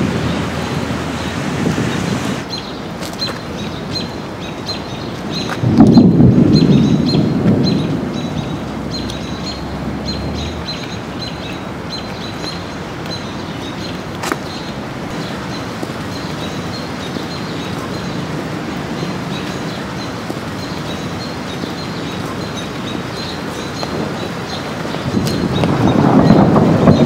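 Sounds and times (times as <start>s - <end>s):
thunder rumble: 0.0s - 2.4s, 5.6s - 11.8s, 15.0s - 27.0s
bird chirping: 0.0s - 27.0s.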